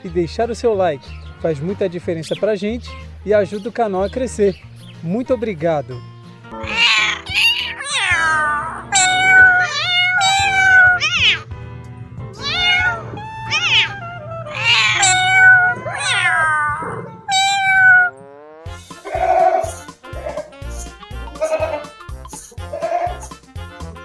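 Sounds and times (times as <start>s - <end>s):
background music: 0.0s - 24.0s
different animal call: 6.5s - 11.5s, 12.4s - 18.2s, 19.0s - 23.4s
cat meowing: 6.6s - 11.5s, 12.3s - 18.1s.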